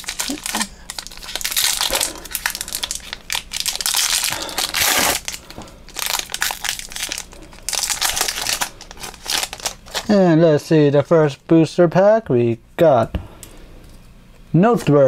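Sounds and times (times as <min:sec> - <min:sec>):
wrapper crinkling and crackling: 0:00.0 - 0:10.2.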